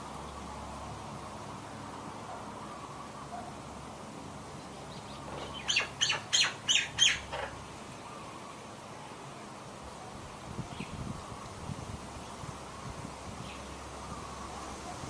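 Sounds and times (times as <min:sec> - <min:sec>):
faint background hiss: 0:00.0 - 0:15.0
bird calling sharp notes: 0:05.3 - 0:08.6.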